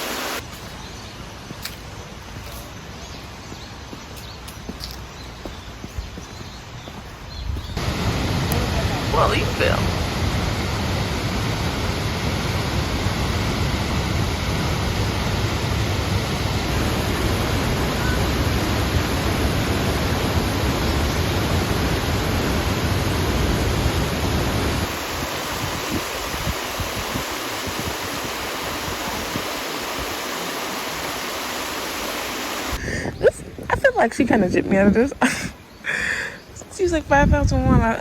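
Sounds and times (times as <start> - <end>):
waterfall rushing: 0.0 - 0.4, 7.8 - 32.8.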